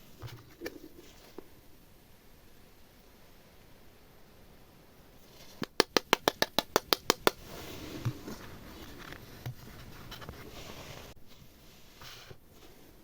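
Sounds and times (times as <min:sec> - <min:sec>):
sharp taps on slime: 0:05.6 - 0:07.5.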